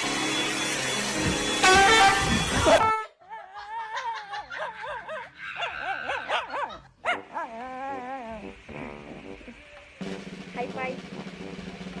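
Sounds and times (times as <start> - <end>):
dog yelping: 4.6 - 8.4
dog whining and yipping: 5.6 - 8.5.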